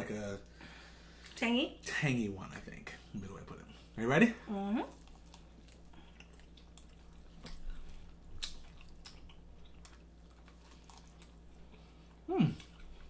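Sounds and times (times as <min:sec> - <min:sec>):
chewing chicken wings: 0:04.9 - 0:13.0
wet mouth clicks and smacks: 0:08.3 - 0:09.4
person humming mm: 0:12.2 - 0:12.7.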